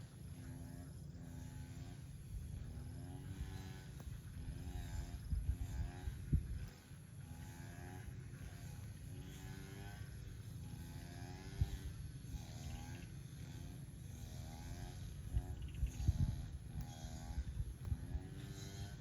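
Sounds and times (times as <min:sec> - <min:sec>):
steady low rumble: 0:00.0 - 0:09.1, 0:13.8 - 0:19.0.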